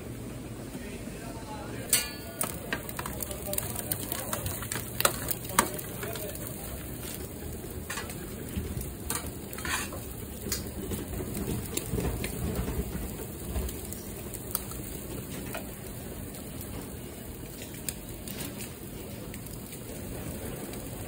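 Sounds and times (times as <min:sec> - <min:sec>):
food sizzling on a griddle: 0:01.8 - 0:21.0
metal tongs clicking on trays: 0:01.9 - 0:06.6.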